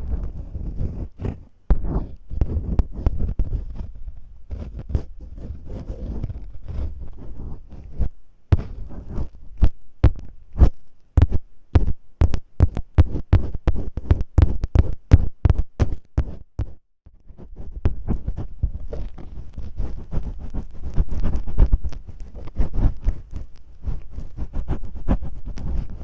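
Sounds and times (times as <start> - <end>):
tape rustling: 17.9 - 26.0.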